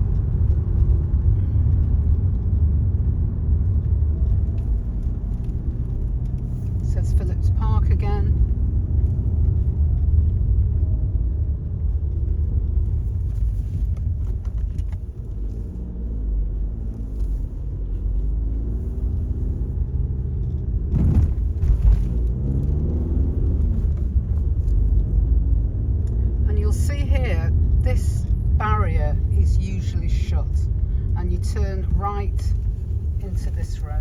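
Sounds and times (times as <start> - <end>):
car engine while driving: 0.0 - 34.0
road rumble: 0.0 - 34.0.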